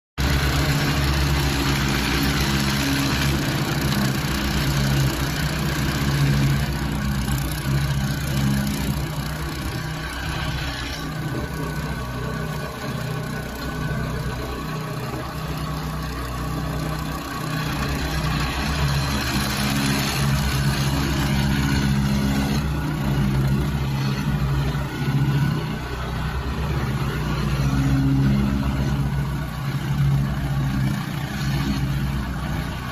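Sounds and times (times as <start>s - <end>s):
heavy machine engine running: 0.2s - 32.9s.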